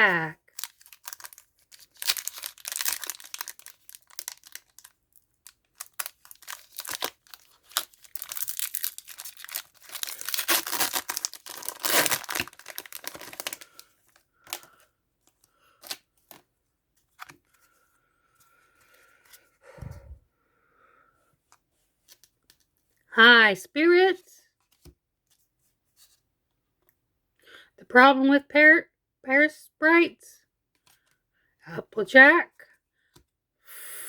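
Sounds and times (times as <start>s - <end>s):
wrapper crinkling: 0.4s - 16.4s.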